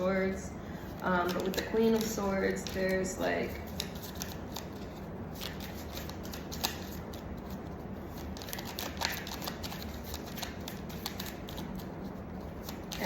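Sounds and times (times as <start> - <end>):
low room hum: 0.0 - 13.0
cards clicking and rustling: 1.0 - 3.0, 3.7 - 11.9.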